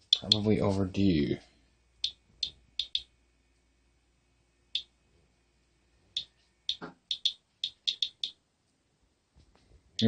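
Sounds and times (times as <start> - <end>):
geiger counter clicking: 0.0 - 0.5, 2.0 - 3.1, 6.2 - 8.4.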